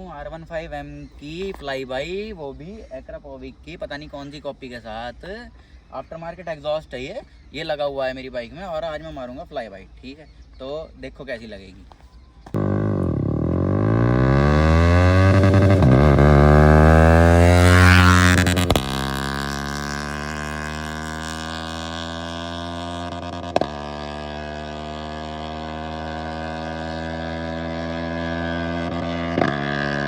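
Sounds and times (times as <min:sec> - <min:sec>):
exhaust crack: 0:12.5 - 0:30.0
motorcycle engine revving: 0:12.5 - 0:30.0.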